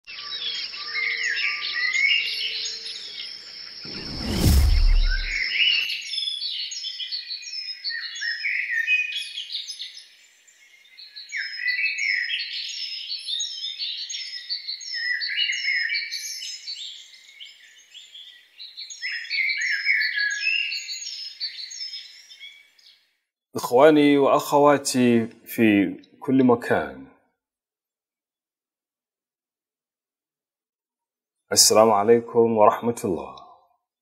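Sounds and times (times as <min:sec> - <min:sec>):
birds chirping and singing: 0:00.1 - 0:23.1.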